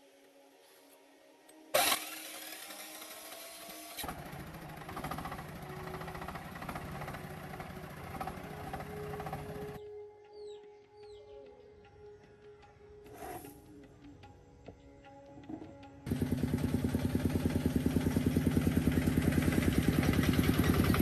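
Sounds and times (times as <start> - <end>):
engine starting: 1.8 - 9.8
engine running rumble: 4.0 - 9.8, 16.1 - 21.0.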